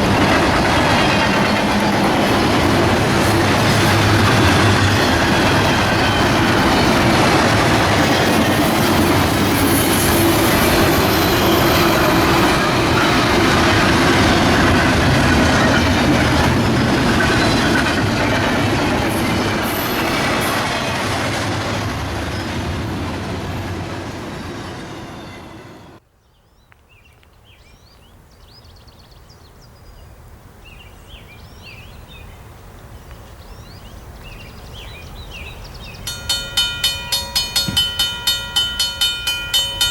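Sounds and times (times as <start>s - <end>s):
freight train rolling past: 0.0s - 26.0s, 34.3s - 39.9s.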